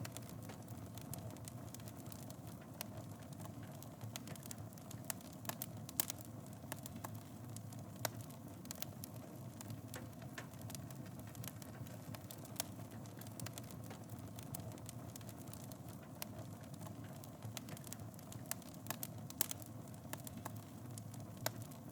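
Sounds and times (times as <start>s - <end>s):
wood fire crackling and popping: 0.0s - 21.9s.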